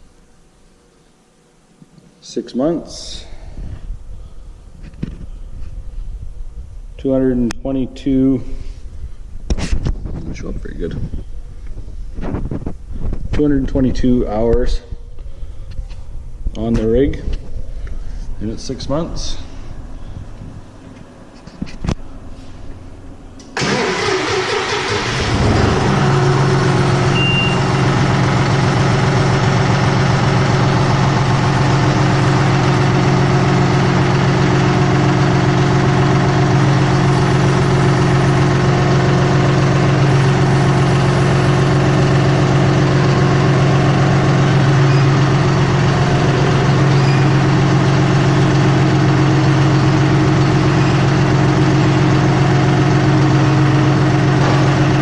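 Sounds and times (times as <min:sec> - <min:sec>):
diesel engine starter cranking: 0:23.4 - 0:55.0
diesel engine idling: 0:23.6 - 0:55.0.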